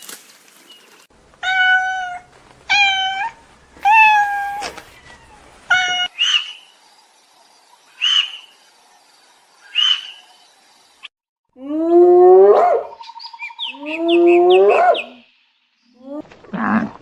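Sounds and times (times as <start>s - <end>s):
animal calls: 3.8s - 6.4s, 13.7s - 15.2s.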